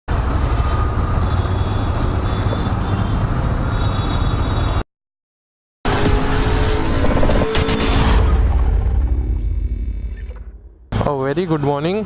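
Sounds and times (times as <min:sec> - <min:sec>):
steady tones: 0:05.9 - 0:11.0.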